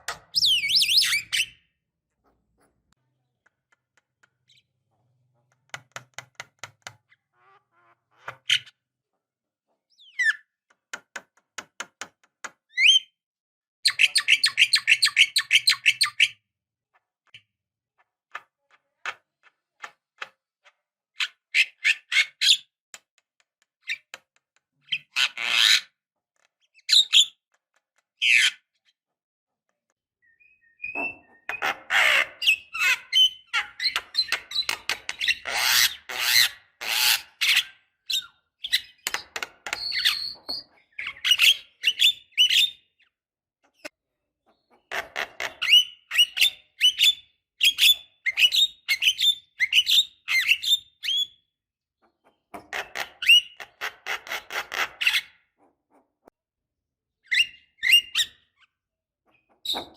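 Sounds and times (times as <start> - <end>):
bird singing harsh and whistled notes: 30.2 - 31.6, 39.8 - 42.9, 57.3 - 58.5.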